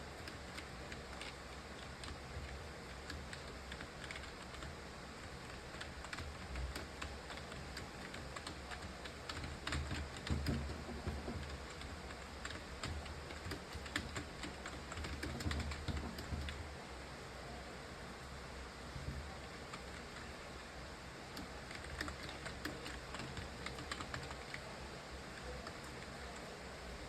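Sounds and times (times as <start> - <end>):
keyboard typing: 0.1 - 16.6, 21.3 - 24.7.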